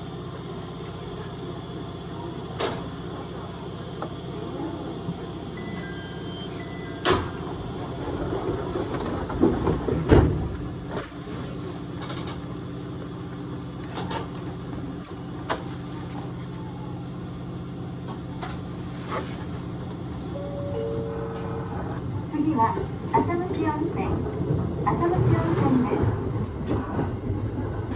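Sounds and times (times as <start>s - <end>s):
electric train hum: 0.0s - 27.9s
train knocks and rattles: 7.0s - 16.4s, 17.4s - 27.9s.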